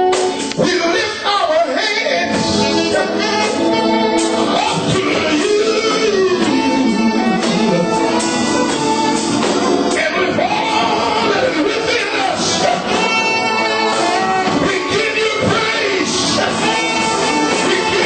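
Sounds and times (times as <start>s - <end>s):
band with steady beat: 0.0s - 18.0s
gospel voices singing: 0.0s - 18.0s.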